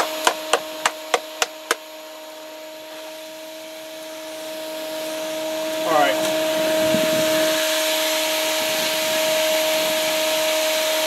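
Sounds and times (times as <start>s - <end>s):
sharp knocks: 0.0s - 1.8s
shop vac motor whining: 0.0s - 11.0s.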